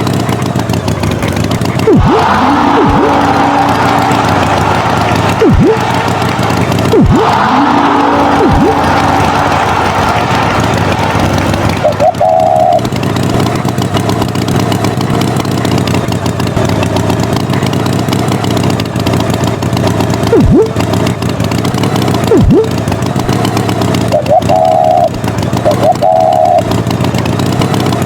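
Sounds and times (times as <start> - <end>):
engine running loudly: 0.0 - 28.0
tones diving in pitch: 1.8 - 13.3, 20.3 - 20.9, 22.2 - 22.9, 24.0 - 26.8.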